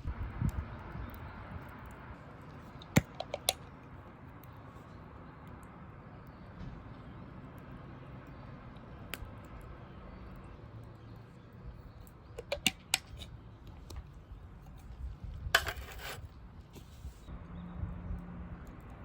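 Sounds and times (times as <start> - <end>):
scraping rustle: 15.5 - 17.3.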